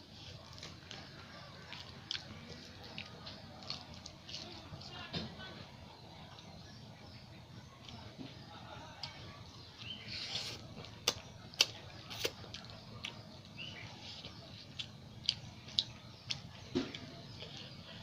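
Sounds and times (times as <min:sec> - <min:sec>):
wet chewing with lip smacks: 0:00.2 - 0:04.9, 0:09.8 - 0:17.7.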